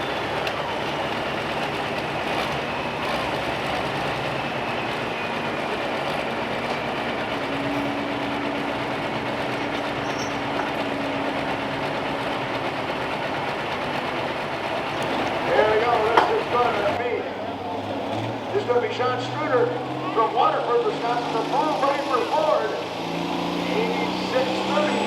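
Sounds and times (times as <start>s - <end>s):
diesel tractor engine under load: 0.0s - 25.0s
turbo whine: 0.0s - 25.0s.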